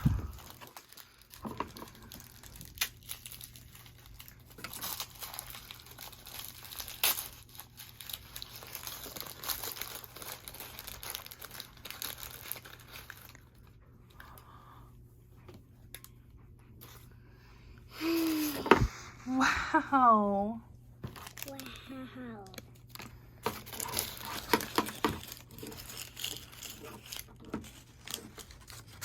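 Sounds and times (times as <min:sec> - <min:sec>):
plastic packaging crinkling and tearing: 0:00.0 - 0:14.4, 0:21.1 - 0:29.0.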